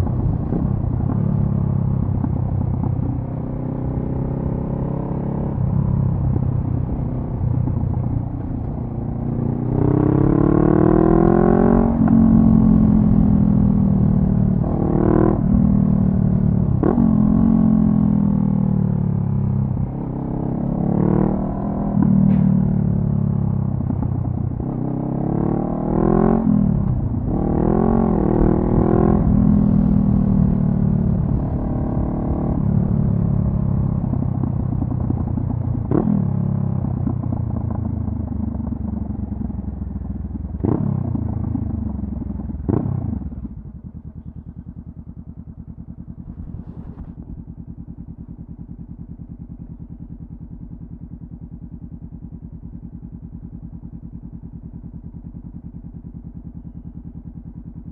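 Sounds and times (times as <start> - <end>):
motorcycle engine revving: 0.0 - 57.9
motorcycle engine idling: 26.7 - 57.9
exhaust cracks: 46.1 - 47.5.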